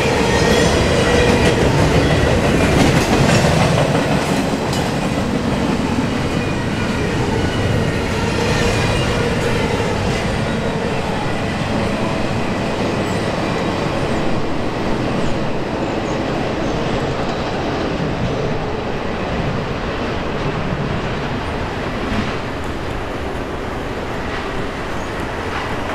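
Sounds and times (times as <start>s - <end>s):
freight train wheels rumbling: 0.0s - 25.9s.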